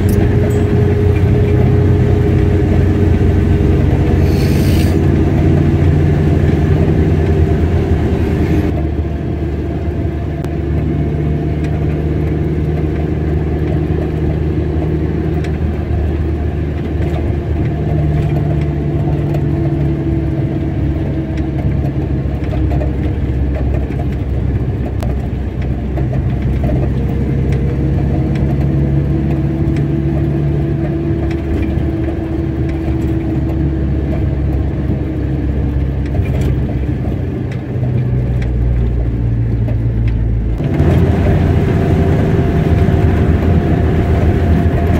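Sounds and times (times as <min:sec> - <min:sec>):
car engine and tyre hum: 0:00.0 - 0:44.9
hiss: 0:04.2 - 0:05.0.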